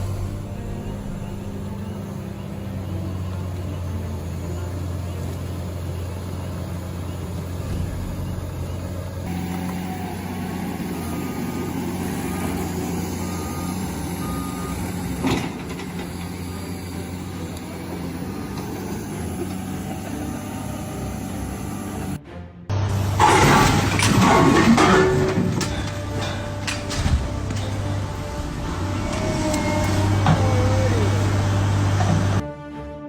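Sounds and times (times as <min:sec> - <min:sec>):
reversing alarm beeps: 0:00.0 - 0:09.3, 0:11.3 - 0:15.7
heavy truck engine running: 0:00.0 - 0:32.5.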